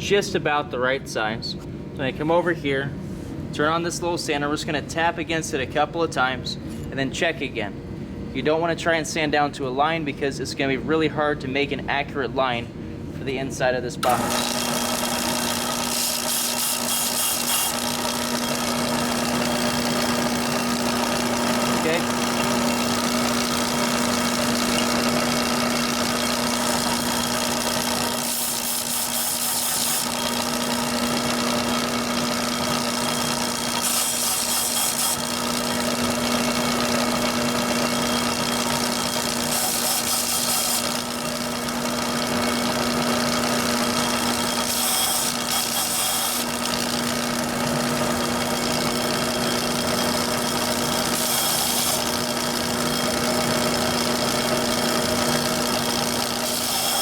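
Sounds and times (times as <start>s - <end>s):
bench sander humming: 14.0s - 57.0s.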